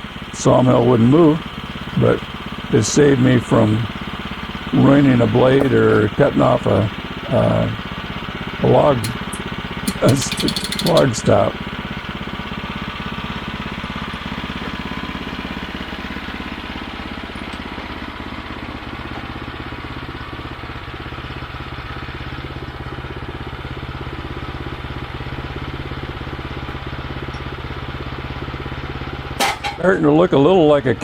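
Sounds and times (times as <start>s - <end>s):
gasoline engine running: 0.0s - 31.0s.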